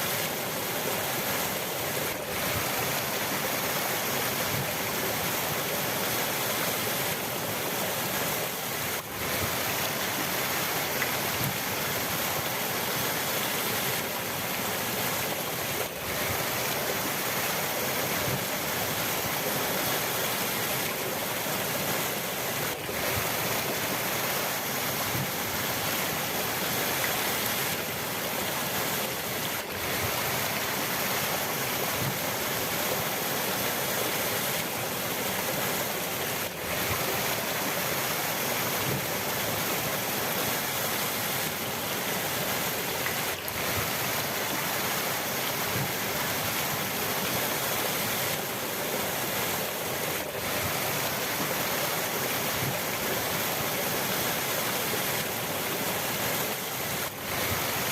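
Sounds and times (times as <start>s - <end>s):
river water rushing: 0.0s - 57.9s.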